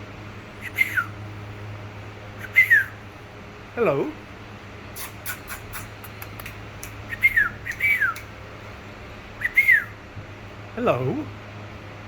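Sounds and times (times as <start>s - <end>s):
parrot whistling: 0.6s - 1.1s, 2.4s - 3.0s, 5.0s - 6.0s, 7.1s - 8.3s, 9.4s - 10.0s.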